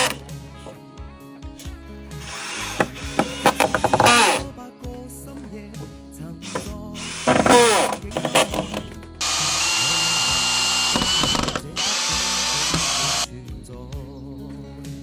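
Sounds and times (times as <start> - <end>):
electric power tool running: 0.0 - 0.8, 2.1 - 4.5, 6.4 - 13.3
background music: 0.0 - 15.0.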